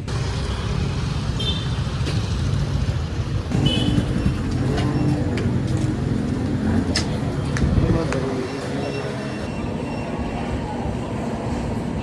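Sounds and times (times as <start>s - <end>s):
car rumbling on road: 0.0s - 8.8s.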